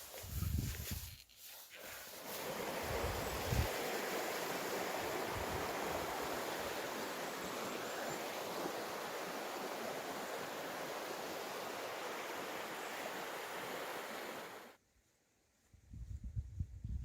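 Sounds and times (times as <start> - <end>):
strong wind blowing: 2.5 - 14.6.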